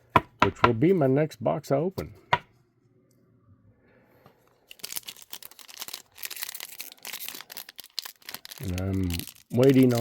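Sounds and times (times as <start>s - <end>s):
wrapper tearing and crinkling: 4.7s - 10.0s.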